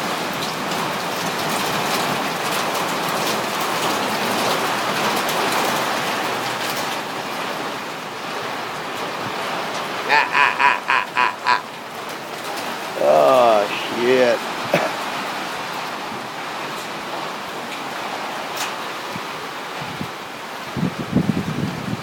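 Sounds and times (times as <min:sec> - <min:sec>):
hail and rain pelting down: 0:00.0 - 0:22.0
duck quacking: 0:10.1 - 0:11.6.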